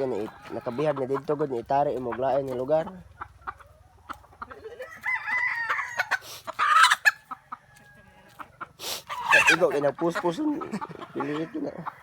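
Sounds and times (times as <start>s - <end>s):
chickens clucking: 0.0s - 12.0s
rooster crowing: 4.8s - 6.2s.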